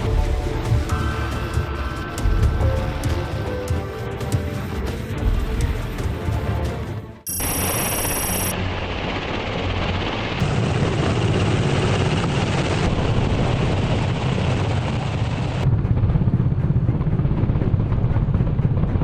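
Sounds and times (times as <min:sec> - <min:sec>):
engine and rotor-wash rush: 0:07.3 - 0:19.0
helicopter rotor chop: 0:07.3 - 0:19.0.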